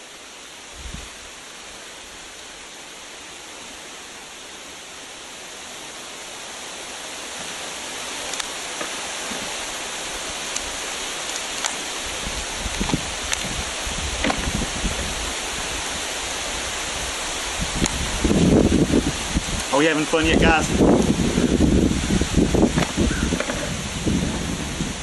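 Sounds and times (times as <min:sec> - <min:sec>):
steady hiss: 0:00.0 - 0:25.0
sharp crackles: 0:08.2 - 0:13.6.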